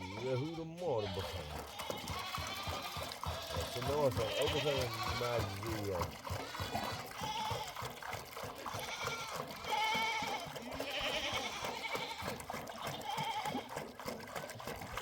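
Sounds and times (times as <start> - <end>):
sheep and goats bleating: 0.0 - 14.0.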